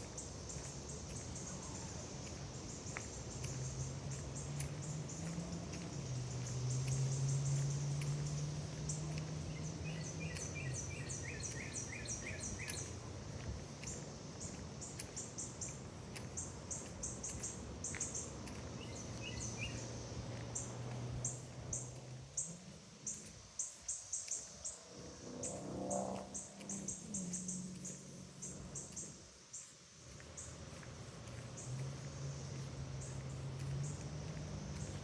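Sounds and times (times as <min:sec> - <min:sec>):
birds chirping: 0:04.6 - 0:13.0, 0:13.8 - 0:19.9.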